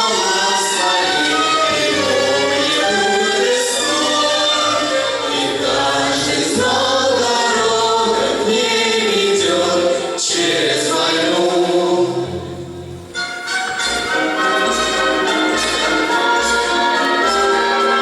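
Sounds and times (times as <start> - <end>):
choir singing a waltz song: 0.0 - 18.0
instrumental accompaniment: 12.4 - 18.0.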